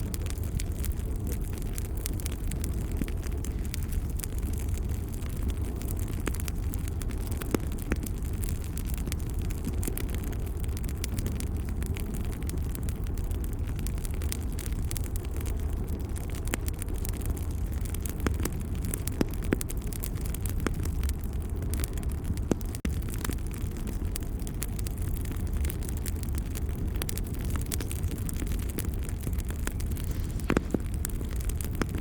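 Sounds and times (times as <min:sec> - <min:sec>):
fire popping and snapping: 0:00.0 - 0:32.0
fire rumbling: 0:00.0 - 0:32.0.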